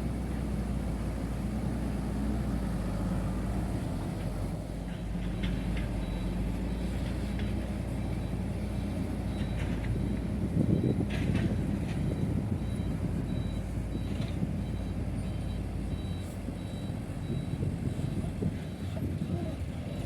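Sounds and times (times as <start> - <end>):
heavy machinery diesel engine: 0.0 - 20.0
reversing alarm beeping: 5.4 - 20.0.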